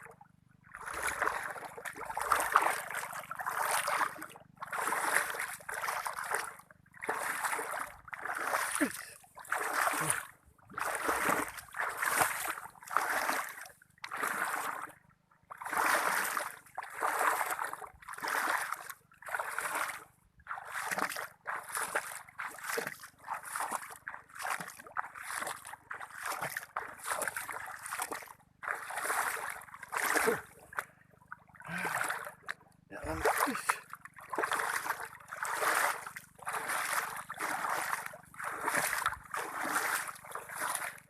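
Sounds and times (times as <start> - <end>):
splashes of wading through water: 0.0 - 41.0.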